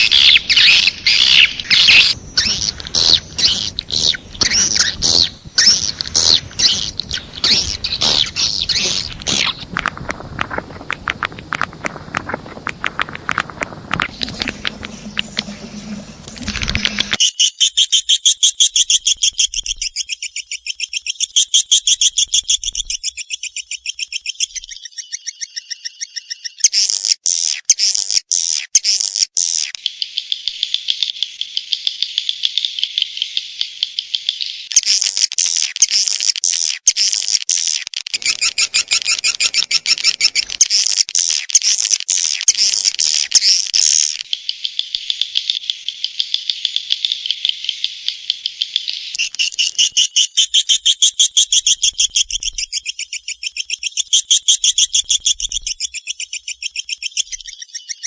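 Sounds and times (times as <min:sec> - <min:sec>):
recorded bird chirps and twitters: 0:00.0 - 0:18.4, 0:20.0 - 0:27.0, 0:38.2 - 0:58.0.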